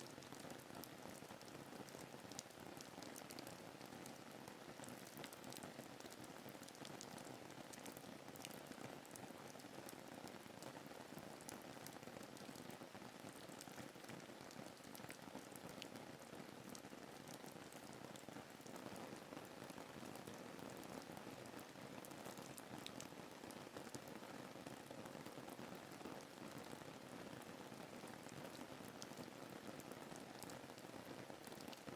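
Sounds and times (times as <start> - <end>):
raindrop ticks: 0.0 - 4.2, 4.8 - 10.0, 16.7 - 24.2, 30.0 - 31.9
faint rain falling: 0.0 - 31.9.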